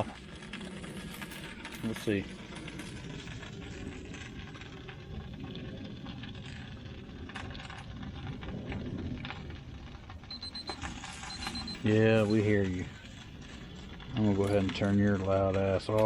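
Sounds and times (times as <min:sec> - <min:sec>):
thermometer alarm beeping: 0:10.3 - 0:12.6.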